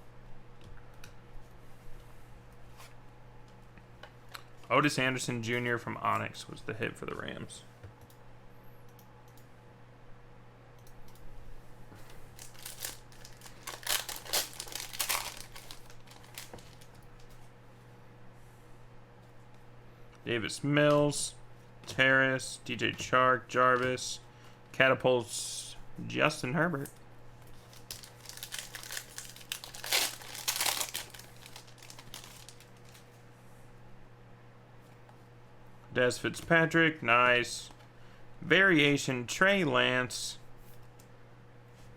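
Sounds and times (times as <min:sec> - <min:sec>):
card pack wrapper crinkling: 0:12.3 - 0:17.0, 0:27.5 - 0:33.1.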